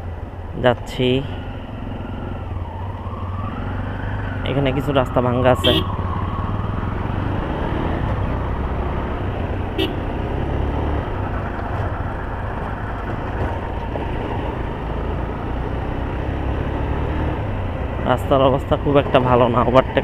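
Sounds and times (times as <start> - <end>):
road and wind noise: 0.0 - 20.0
short horn toot: 9.8 - 10.0.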